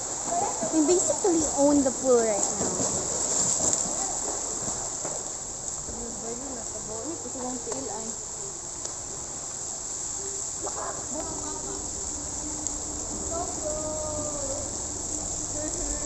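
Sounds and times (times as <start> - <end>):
faint distant voices: 0.2 - 16.0
insects chirring: 4.8 - 16.0.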